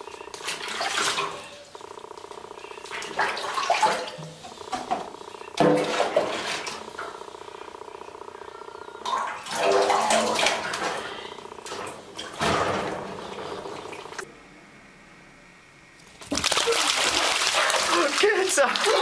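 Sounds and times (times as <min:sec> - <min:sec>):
running bathwater: 0:09.1 - 0:11.3, 0:16.0 - 0:19.0.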